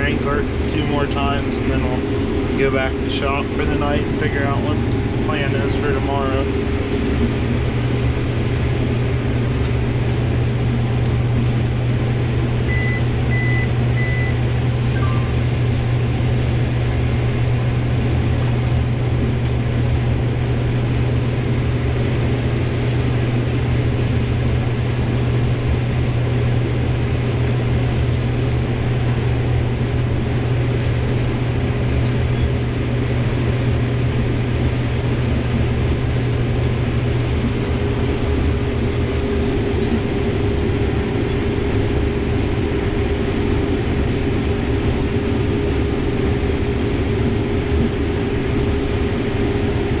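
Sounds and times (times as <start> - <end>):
low engine drone: 0.0 - 50.0
short high electronic beeps: 15.0 - 15.4.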